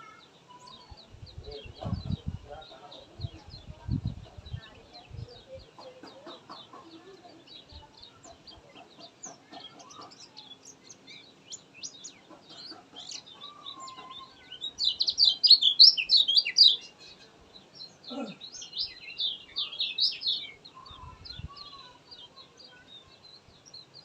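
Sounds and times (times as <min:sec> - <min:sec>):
bird singing high chirps: 0:07.2 - 0:24.0.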